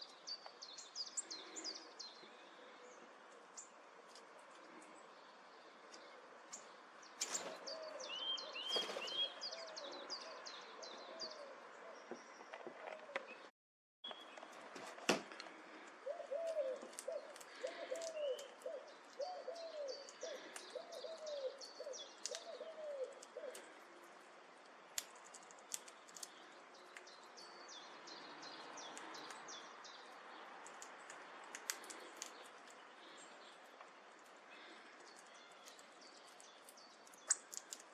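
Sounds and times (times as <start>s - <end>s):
small birds chirping: 0.0s - 13.5s, 15.4s - 37.9s
bird low hooting: 7.6s - 12.2s, 16.0s - 23.8s.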